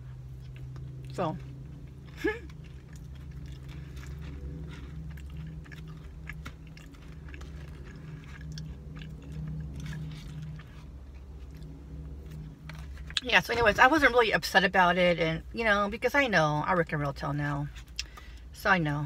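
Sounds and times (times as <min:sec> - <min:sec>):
person chewing: 0:00.0 - 0:13.2
steady low hum: 0:00.0 - 0:19.0
small crunches: 0:00.4 - 0:13.2.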